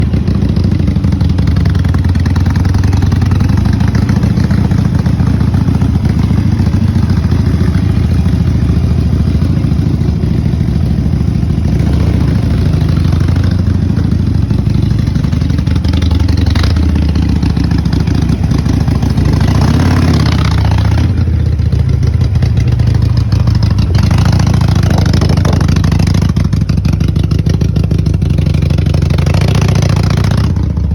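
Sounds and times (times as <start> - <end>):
motorcycle engine deep exhaust: 0.0 - 30.9.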